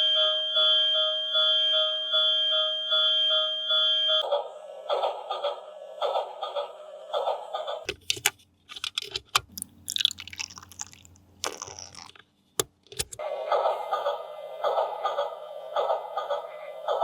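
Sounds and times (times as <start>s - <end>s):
plastic packaging clicks and crinkling: 7.9s - 13.2s.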